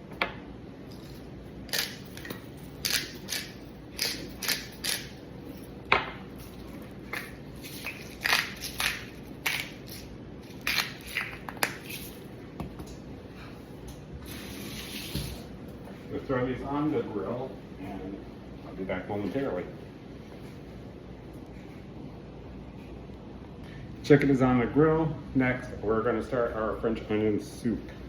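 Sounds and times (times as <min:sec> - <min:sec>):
spice grinders crunching: 0:00.9 - 0:05.3, 0:06.7 - 0:12.3.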